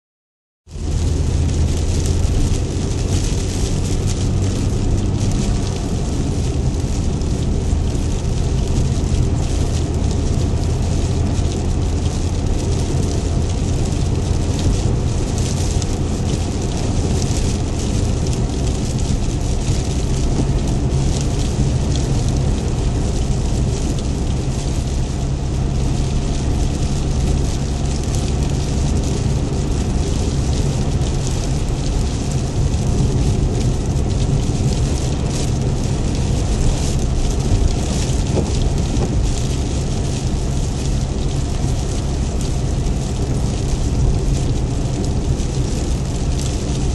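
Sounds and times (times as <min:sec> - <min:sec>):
heavy rain on vehicle: 0:00.6 - 0:46.9.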